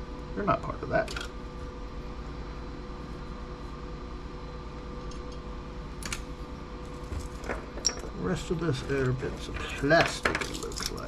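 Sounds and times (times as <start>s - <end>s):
fan humming: 0.0s - 11.0s
small metal part clinking: 7.8s - 8.2s.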